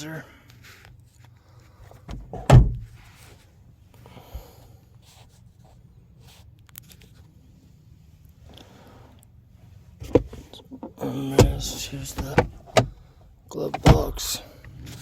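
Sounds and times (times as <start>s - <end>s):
low steady hum: 0.0s - 15.0s
rustling handling noises: 2.8s - 12.9s.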